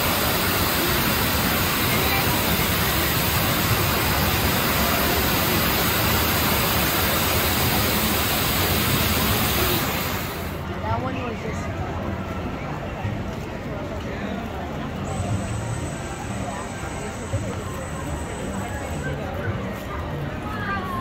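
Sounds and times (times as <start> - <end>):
loud rushing noise: 0.0 - 10.7
faint voices: 0.0 - 21.0.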